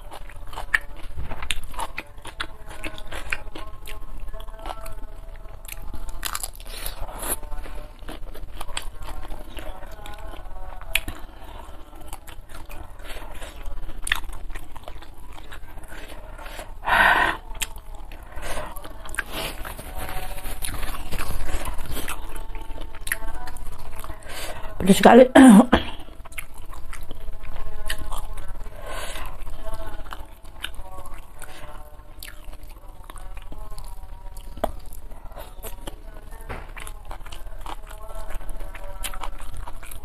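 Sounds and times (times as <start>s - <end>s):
chewing shrimp with wet mouth sounds: 0.0s - 16.8s, 17.4s - 24.3s, 26.0s - 40.0s
mouth clicks and crunches: 0.0s - 24.2s.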